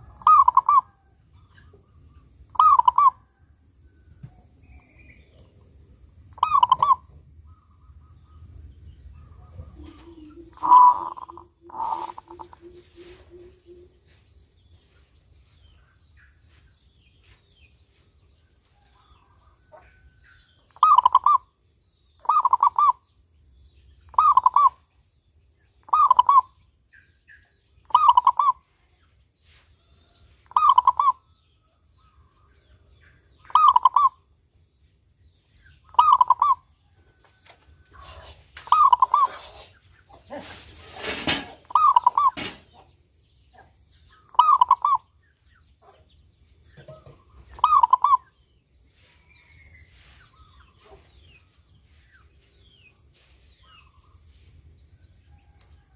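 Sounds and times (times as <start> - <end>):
dove calling: 0.0 - 1.0, 1.6 - 3.4, 6.3 - 14.3, 19.7 - 21.6, 22.2 - 23.0, 24.0 - 24.9, 25.8 - 28.7, 30.4 - 31.3, 33.1 - 34.3, 35.7 - 37.0, 37.8 - 45.2, 46.7 - 48.4.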